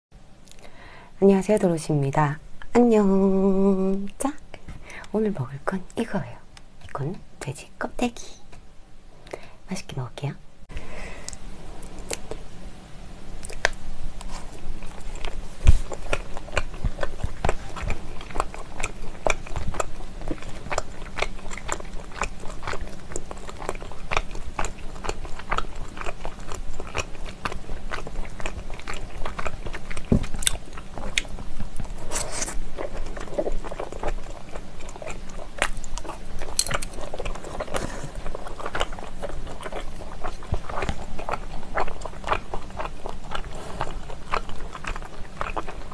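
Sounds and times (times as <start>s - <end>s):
wet chewing: 11.2s - 12.5s, 13.4s - 45.9s.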